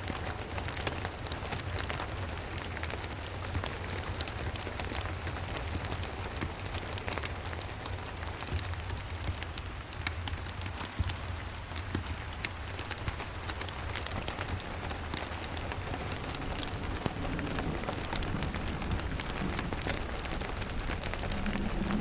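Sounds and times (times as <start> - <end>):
steady rain: 0.0 - 22.0
wood fire crackling: 0.1 - 22.0
distant thunder rumble: 14.2 - 22.0.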